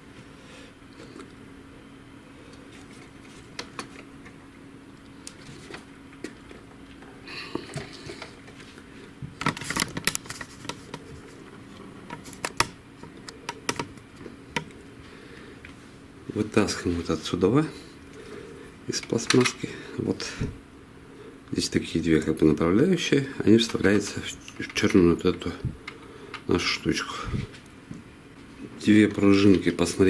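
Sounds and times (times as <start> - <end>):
plastic printer parts clicking: 2.7 - 4.4, 9.4 - 14.8
plastic parts clattering: 9.4 - 11.3.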